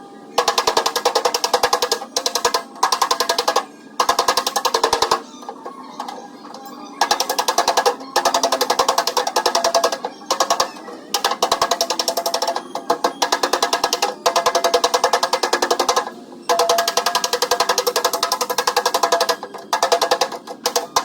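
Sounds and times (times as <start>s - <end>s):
hammer tapping sheet metal: 7.0s - 21.0s.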